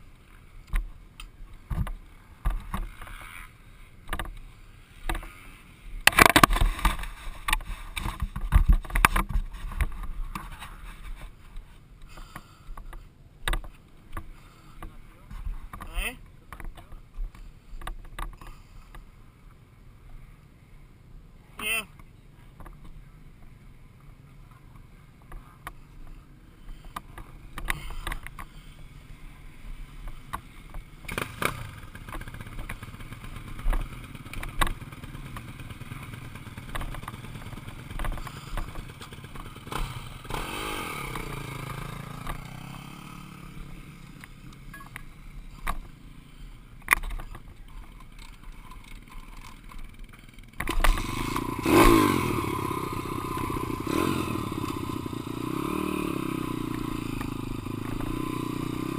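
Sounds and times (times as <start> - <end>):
dirt bike engine running: 4.9 - 11.1, 26.7 - 58.9.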